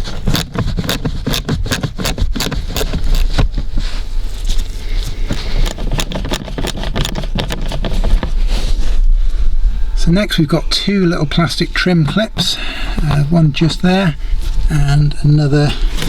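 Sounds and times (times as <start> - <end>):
scraping: 0.0 - 9.6
ratchet clicking: 0.1 - 3.3, 5.3 - 8.2.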